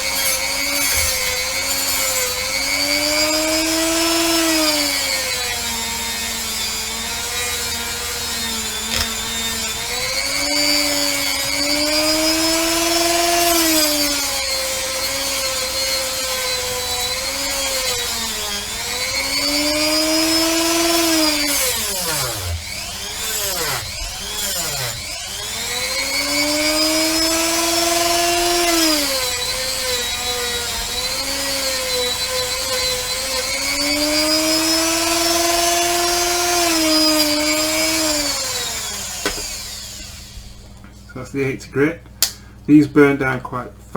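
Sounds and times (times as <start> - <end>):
rotary tool grinding metal: 0.0 - 40.8.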